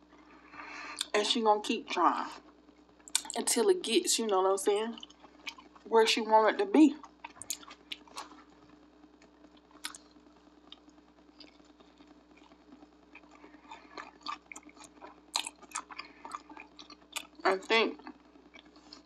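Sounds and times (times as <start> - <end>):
person chewing wetly: 3.1 - 3.4, 5.0 - 5.8, 7.0 - 8.4, 10.7 - 17.4.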